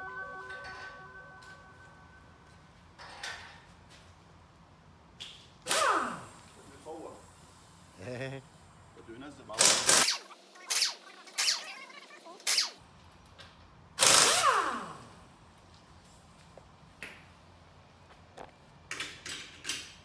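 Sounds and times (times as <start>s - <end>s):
sharp clicks: 9.6s - 12.8s.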